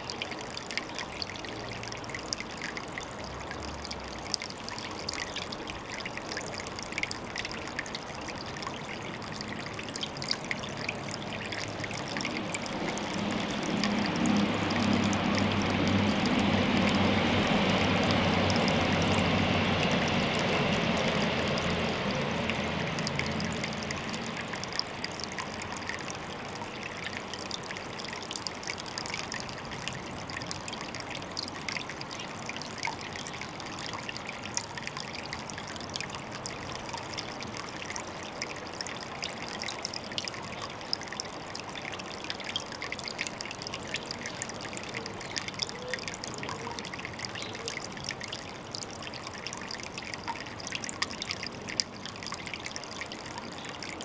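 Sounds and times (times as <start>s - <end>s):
water trickling and splashing: 0.0s - 54.0s.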